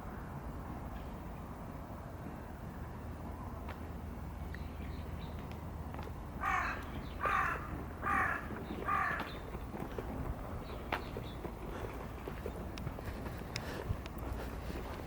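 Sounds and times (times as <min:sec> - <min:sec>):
outdoor background noise: 0:00.0 - 0:15.0
crow cawing: 0:06.4 - 0:09.4.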